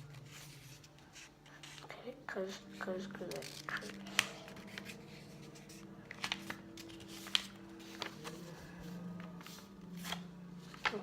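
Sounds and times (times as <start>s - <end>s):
paper being folded: 2.7s - 11.0s
paper crackling: 2.7s - 11.0s.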